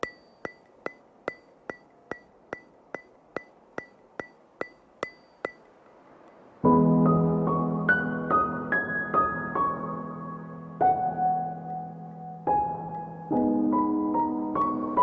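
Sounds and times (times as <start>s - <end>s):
sharp ticks with ringing tone: 0.0s - 6.5s, 11.6s - 11.9s
soft keyboard chords: 6.6s - 15.0s.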